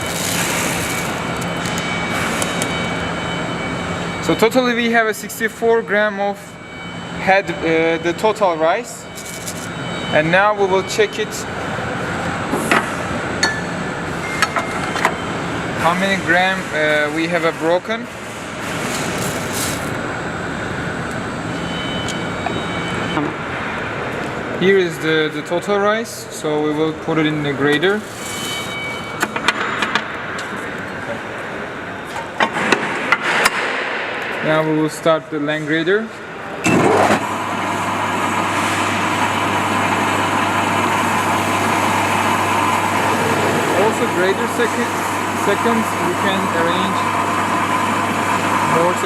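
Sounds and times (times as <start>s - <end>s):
machinery rushing noise: 36.8s - 49.0s
motor hum: 36.8s - 49.0s.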